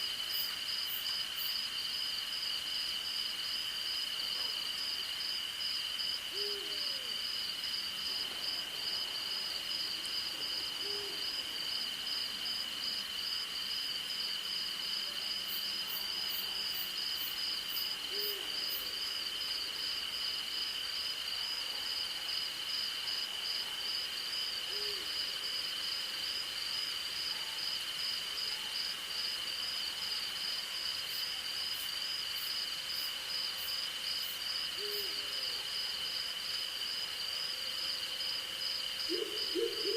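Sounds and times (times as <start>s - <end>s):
insect drone: 0.0s - 39.9s
owl hooting: 39.1s - 39.9s.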